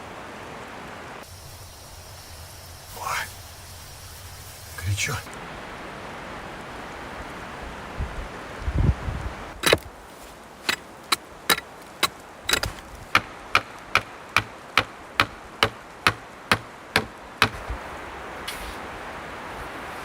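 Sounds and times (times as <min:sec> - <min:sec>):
wind hiss: 0:00.0 - 0:20.0
sharp knocks on wood: 0:11.5 - 0:17.8.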